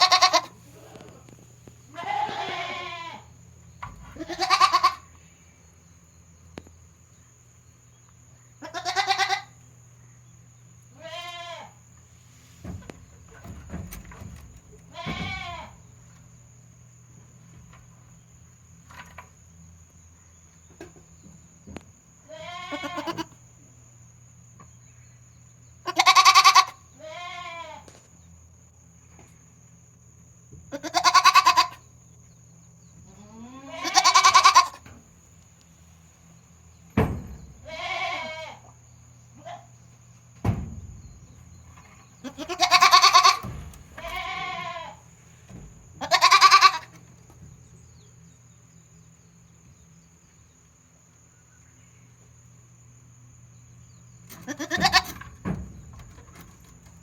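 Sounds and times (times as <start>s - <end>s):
goat kid bleating: 0.0s - 1.1s, 1.9s - 3.3s, 4.2s - 5.1s, 8.6s - 9.6s, 11.0s - 11.8s, 14.9s - 15.8s, 22.3s - 23.4s, 25.8s - 27.9s, 30.7s - 31.8s, 33.1s - 34.8s, 37.6s - 38.8s, 39.4s - 39.7s, 42.2s - 45.0s, 46.0s - 46.9s, 54.5s - 55.1s.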